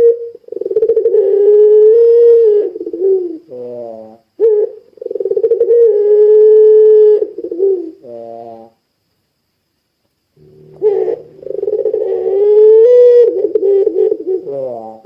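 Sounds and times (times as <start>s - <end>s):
dove cooing: 0.0s - 8.8s, 10.4s - 15.0s.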